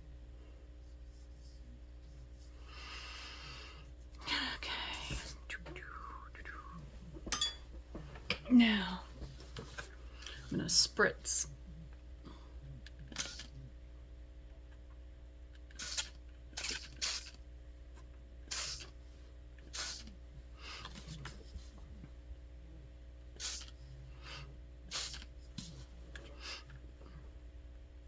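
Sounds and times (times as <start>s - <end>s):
spray bottle hissing sprays: 18.5s - 18.9s, 19.7s - 20.1s, 23.4s - 23.7s, 24.9s - 25.3s.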